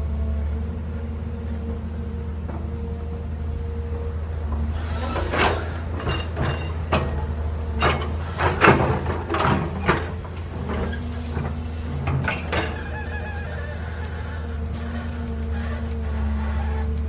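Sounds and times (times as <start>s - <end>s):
excavator engine running: 0.0s - 17.0s
metallic clanks and scrapes: 4.5s - 16.9s.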